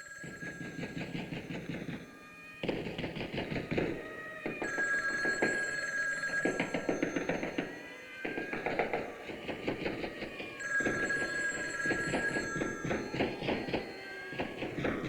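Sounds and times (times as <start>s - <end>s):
telephone bell ringing: 0.0s - 2.3s, 4.1s - 7.9s, 10.5s - 15.0s.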